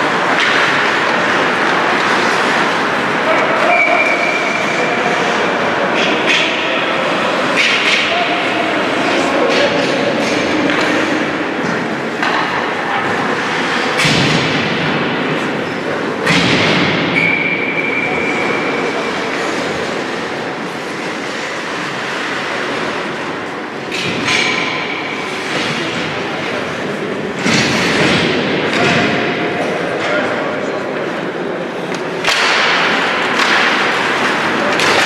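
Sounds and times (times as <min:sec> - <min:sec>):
puck banging against boards: 0:00.0 - 0:04.8, 0:05.9 - 0:17.6, 0:27.4 - 0:30.1, 0:31.9 - 0:35.0
skates scraping on ice: 0:00.0 - 0:14.4, 0:18.3 - 0:24.1, 0:25.1 - 0:28.3.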